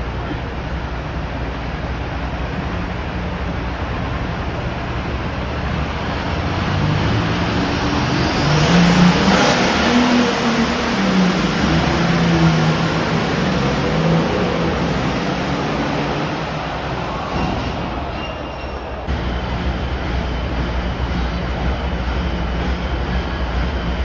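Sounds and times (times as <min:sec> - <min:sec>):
tractor engine running hard: 0:19.1 - 0:24.0.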